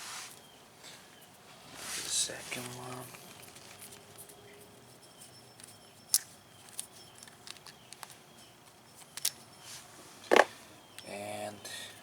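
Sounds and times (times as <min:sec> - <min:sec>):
small metal parts clicking: 0:05.6 - 0:08.2, 0:08.9 - 0:09.4.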